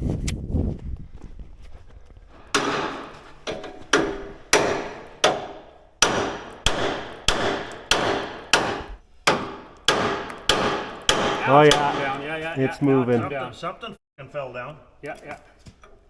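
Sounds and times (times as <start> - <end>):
hammer pounding on metal: 2.5 - 12.4.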